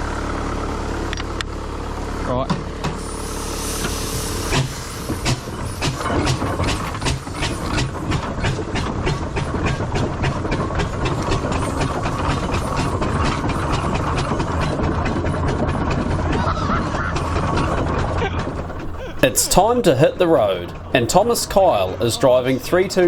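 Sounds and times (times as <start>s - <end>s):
steam engine exhaust chuffing: 0.0s - 23.0s
low running rumble: 17.7s - 23.0s.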